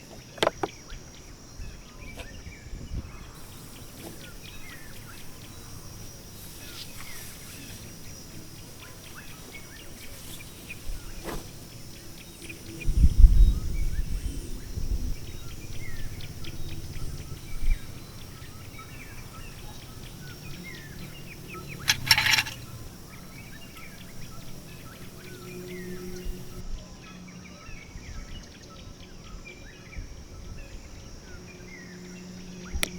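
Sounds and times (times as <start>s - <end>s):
small birds chirping: 0.0s - 26.6s
wind buffeting microphone: 1.6s - 26.6s.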